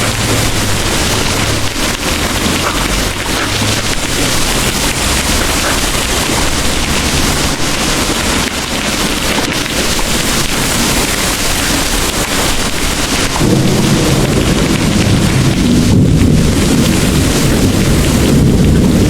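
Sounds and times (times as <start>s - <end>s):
heavy rain pouring: 0.0s - 19.0s
deep rumble: 13.3s - 19.0s.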